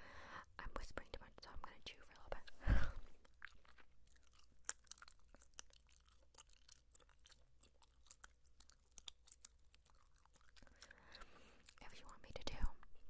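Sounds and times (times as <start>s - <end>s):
gum chewing: 2.3s - 12.4s.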